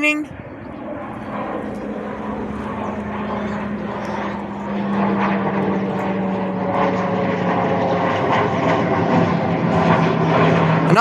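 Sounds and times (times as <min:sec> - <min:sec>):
propeller plane flying over: 0:00.0 - 0:11.0.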